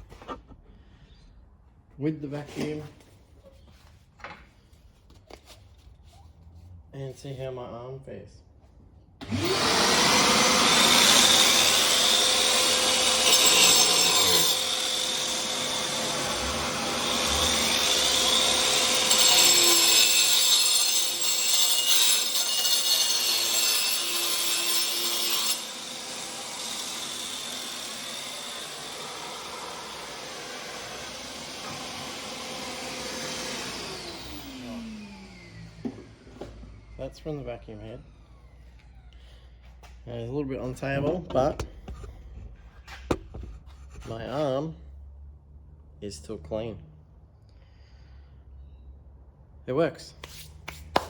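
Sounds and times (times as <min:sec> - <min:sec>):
angle grinder cutting fibreglass: 0:09.2 - 0:36.5.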